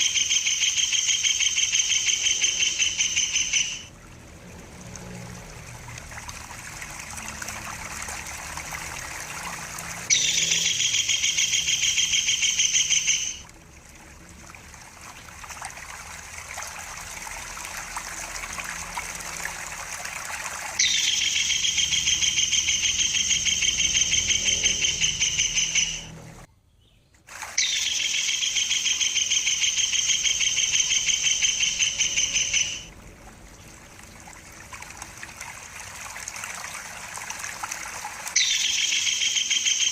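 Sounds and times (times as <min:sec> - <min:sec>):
kingfisher rattling trill: 0:00.0 - 0:03.9, 0:10.0 - 0:13.4, 0:20.8 - 0:26.1, 0:27.6 - 0:32.9
trickling water: 0:00.0 - 0:26.5, 0:27.2 - 0:39.9.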